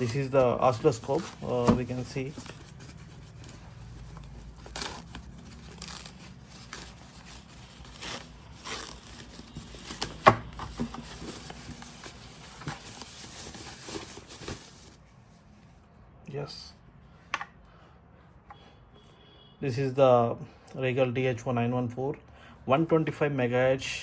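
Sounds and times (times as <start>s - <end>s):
packaging rustling and crinkling: 0.0s - 15.1s.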